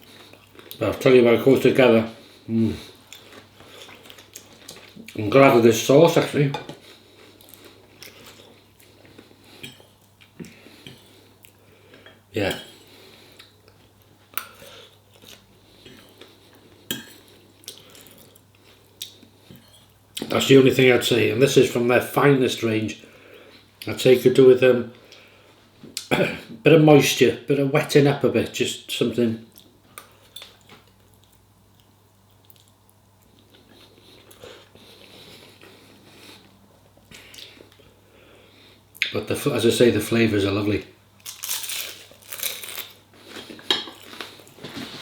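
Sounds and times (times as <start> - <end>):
faint chewing: 2.3 - 5.2, 6.7 - 12.2, 29.5 - 38.0
cutlery clinking against a dish: 9.6 - 9.9, 16.9 - 17.3.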